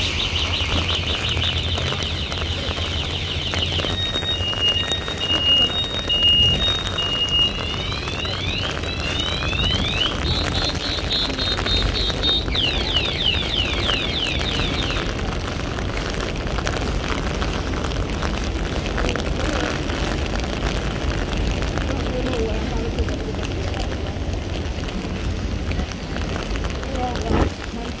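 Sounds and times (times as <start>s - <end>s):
car alarm: 0.0s - 15.2s
heavy rain: 0.0s - 28.0s
traffic noise: 0.0s - 28.0s.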